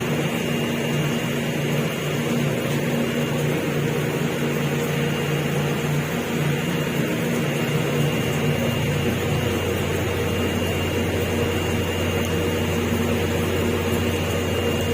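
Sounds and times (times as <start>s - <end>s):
ferry engines droning: 4.8s - 14.9s.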